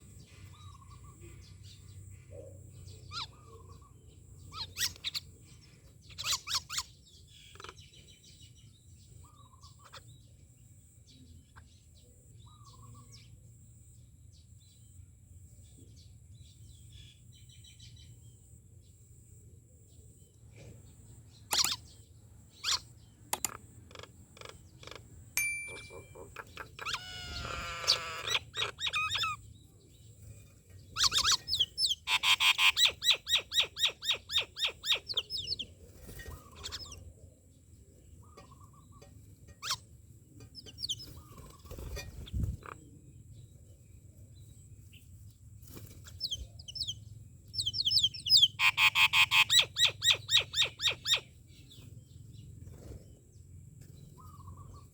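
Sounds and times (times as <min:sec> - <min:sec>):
myna birds calling: 0:00.0 - 0:10.4, 0:20.6 - 0:54.9.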